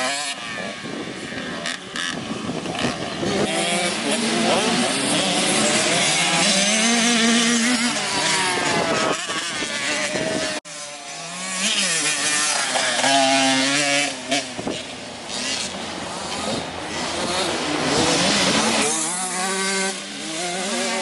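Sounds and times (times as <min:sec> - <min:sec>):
motocross bike engines revving: 0:00.0 - 0:21.0.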